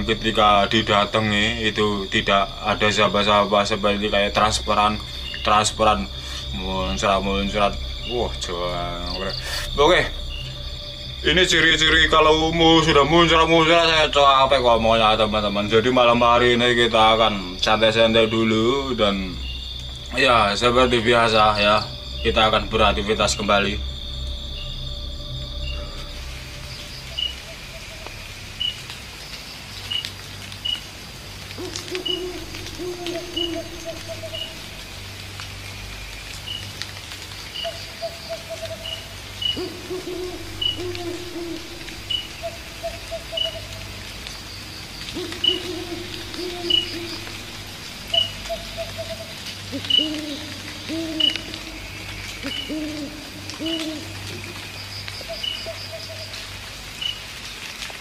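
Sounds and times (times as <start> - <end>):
insects trilling: 0.0 - 58.0
owl hooting: 31.6 - 35.2, 37.6 - 43.8, 45.0 - 56.4.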